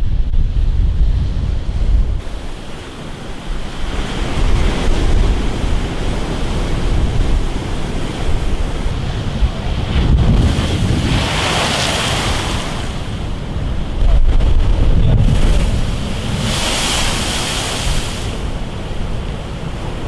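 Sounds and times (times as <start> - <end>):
strong wind buffeting microphone: 0.0 - 20.0
waves surging and breaking: 0.0 - 20.0.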